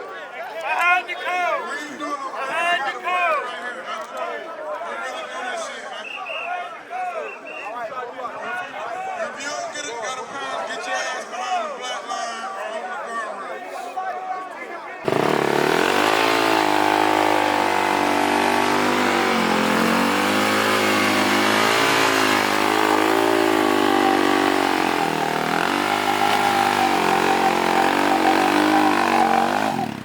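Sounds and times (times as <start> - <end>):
racing engine revving: 15.1 - 30.0.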